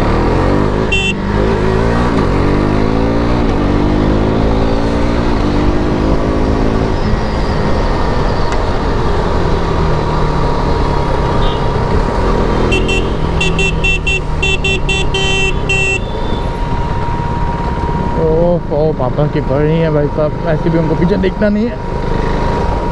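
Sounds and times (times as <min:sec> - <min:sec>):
motorcycle engine accelerating: 0:00.1 - 0:17.9
vehicle horn short toots: 0:00.9 - 0:01.4, 0:11.4 - 0:11.8, 0:12.6 - 0:16.5.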